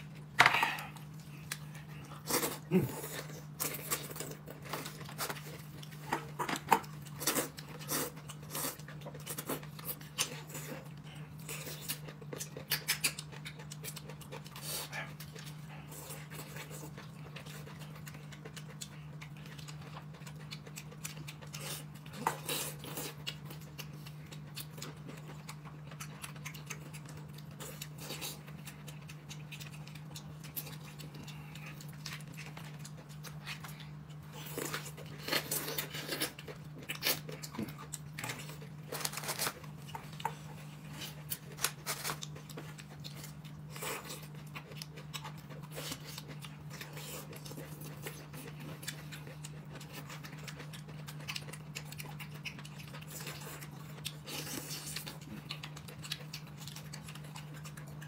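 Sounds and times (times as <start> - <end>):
person chewing: 0.0 - 58.0
steady low hum: 0.0 - 58.0.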